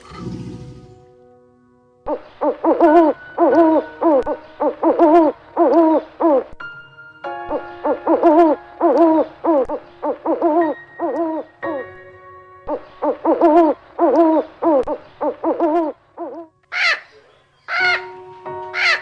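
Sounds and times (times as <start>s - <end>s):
pitched animal calls: 2.1s - 6.6s, 7.5s - 11.9s, 12.7s - 17.1s.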